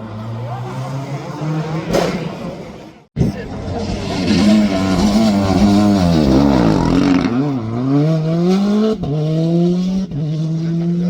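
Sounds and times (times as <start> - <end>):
rally car engine accelerating: 3.2 - 11.0.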